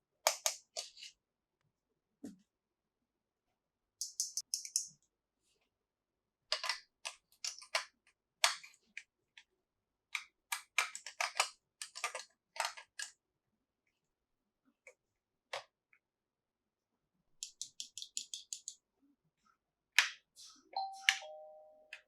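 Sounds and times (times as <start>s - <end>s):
plastic toy pieces clicking: 10.5s - 13.1s.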